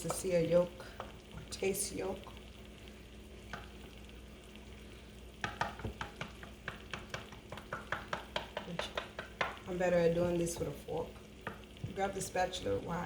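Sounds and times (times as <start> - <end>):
spatula clicking against bowl: 5.4 - 9.6.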